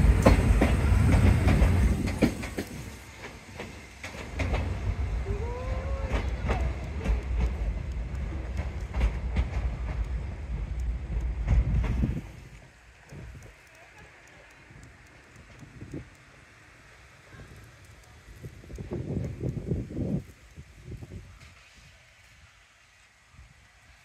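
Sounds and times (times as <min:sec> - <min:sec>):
train wheels clacking over joints: 0:00.0 - 0:20.7
low rumble with clicks: 0:04.2 - 0:21.4.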